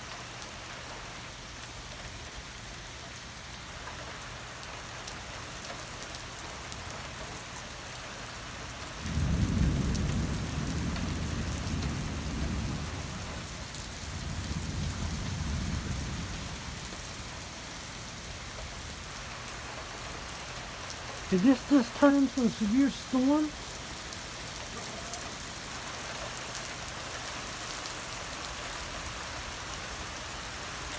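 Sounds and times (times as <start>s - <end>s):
steady rain falling: 0.0s - 30.9s
thunder rumbling: 9.0s - 16.6s.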